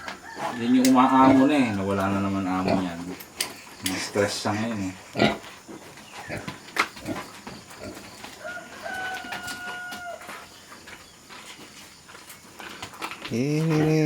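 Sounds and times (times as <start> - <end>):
rooster crowing: 0.0 - 1.7, 8.3 - 10.5.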